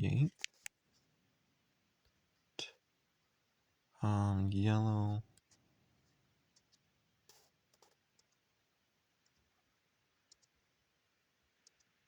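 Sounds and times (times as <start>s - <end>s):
computer mouse clicks: 0.3s - 0.8s, 6.6s - 8.4s, 10.3s - 10.6s, 11.6s - 12.0s.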